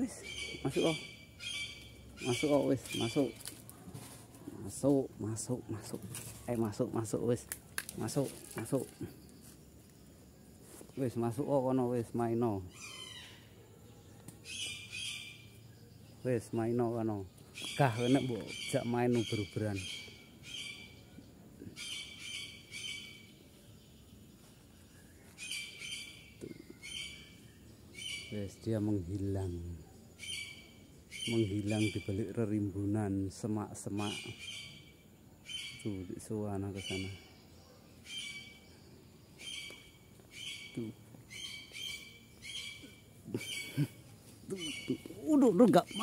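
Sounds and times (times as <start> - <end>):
bird squawking: 0.0 - 3.5, 39.4 - 46.0
birds chirping: 0.0 - 46.0
faint outdoor background: 0.0 - 46.0.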